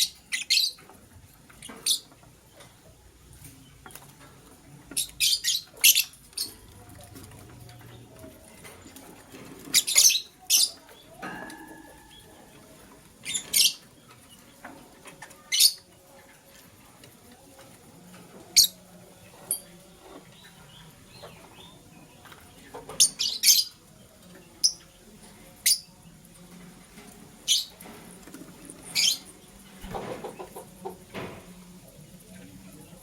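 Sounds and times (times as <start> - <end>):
lovebirds chirping: 28.7 - 30.6.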